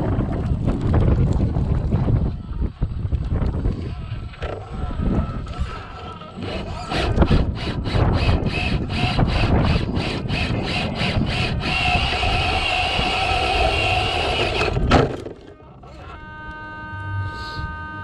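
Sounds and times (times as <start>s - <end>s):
toy car electric motor whining: 3.5s - 14.9s.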